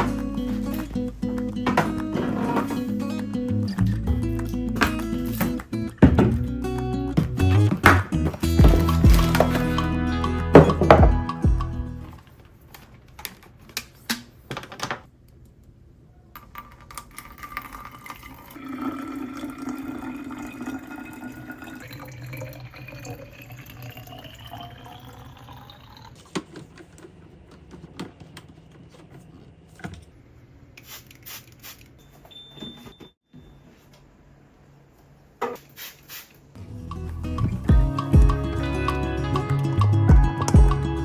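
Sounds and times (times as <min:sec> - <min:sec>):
kitchen items clicking and knocking: 0:01.6 - 0:02.9, 0:04.0 - 0:06.5, 0:07.2 - 0:09.8
tap water filling a container: 0:17.2 - 0:26.1.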